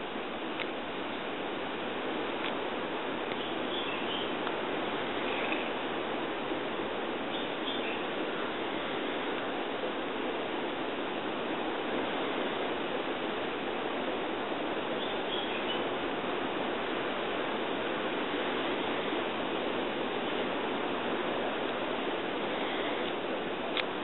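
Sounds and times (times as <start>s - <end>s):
steady background hiss: 0.0s - 24.0s
faint high chirp: 3.4s - 4.4s, 7.3s - 8.1s, 15.0s - 15.9s.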